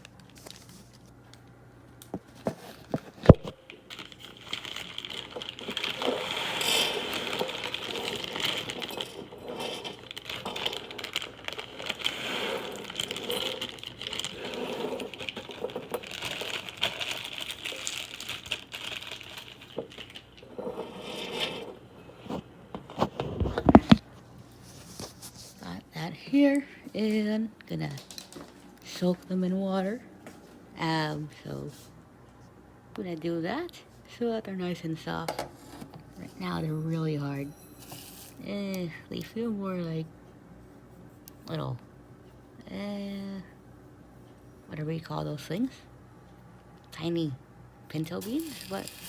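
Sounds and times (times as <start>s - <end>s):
bag crinkling: 2.2s - 25.7s, 27.9s - 28.8s, 37.3s - 38.4s, 48.2s - 49.0s
lentils pattering into bowl: 3.7s - 21.7s, 37.3s - 38.4s, 48.2s - 49.0s.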